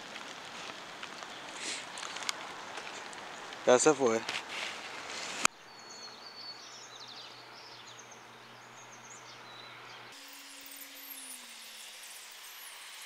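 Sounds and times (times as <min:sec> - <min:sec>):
small birds chirping: 0:05.4 - 0:10.2.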